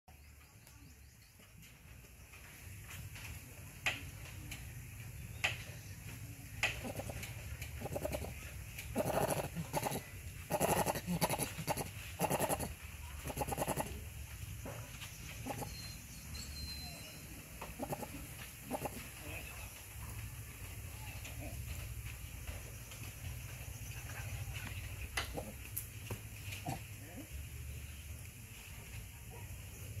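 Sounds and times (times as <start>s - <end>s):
low bird calls: 6.7s - 14.0s, 15.3s - 19.5s.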